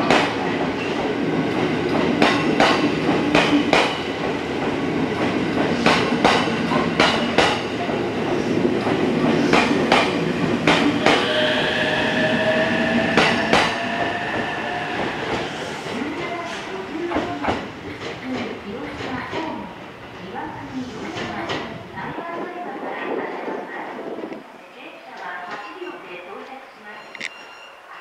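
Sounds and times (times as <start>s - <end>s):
train wheels clacking over rail joints: 0.0s - 8.0s, 8.8s - 19.5s.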